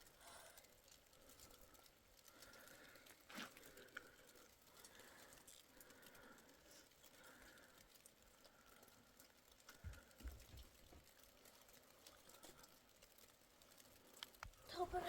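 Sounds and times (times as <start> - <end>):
faint ticks: 0.0 - 15.0.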